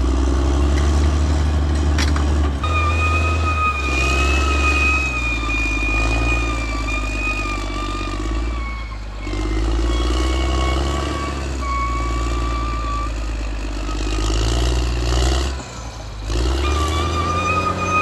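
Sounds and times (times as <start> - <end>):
bulldozer diesel engine under load: 0.0 - 18.0
high steady squeal: 2.1 - 18.0.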